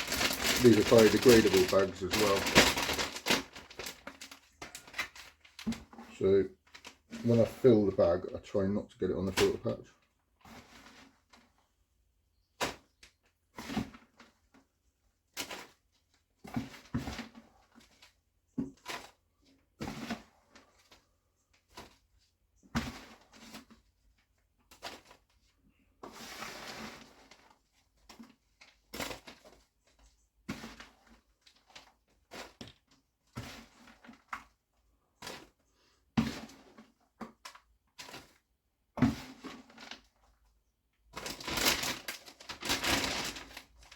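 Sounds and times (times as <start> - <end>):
sawdust being scooped into bag: 0.0 - 4.2.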